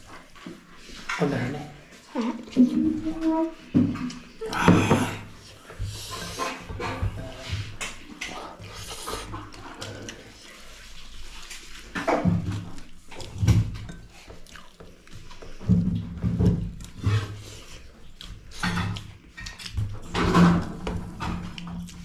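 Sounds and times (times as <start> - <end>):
chewing and lip-smacking: 7.8 - 15.7, 16.6 - 20.7, 21.4 - 22.0.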